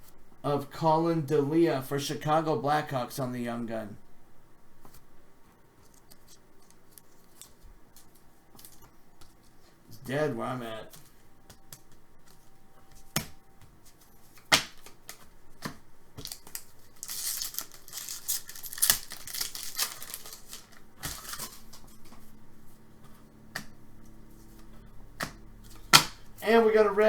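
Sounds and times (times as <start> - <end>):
cards snapping and clicking: 10.9 - 13.4, 14.3 - 22.2, 23.5 - 23.8, 24.6 - 26.3
pack wrapper crinkling and tearing: 16.2 - 21.8.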